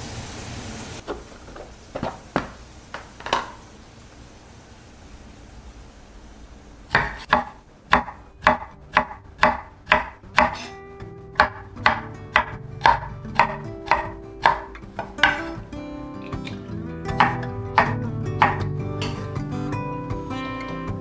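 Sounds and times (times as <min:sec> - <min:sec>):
knife chopping on cutting board: 0:06.9 - 0:10.8, 0:11.4 - 0:15.7, 0:17.2 - 0:19.3.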